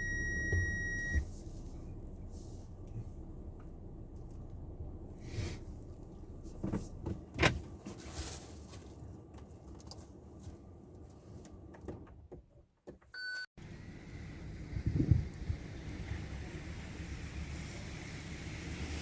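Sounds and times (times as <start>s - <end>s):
short electronic beep: 0.0s - 1.2s
car engine and road hum: 0.0s - 19.0s.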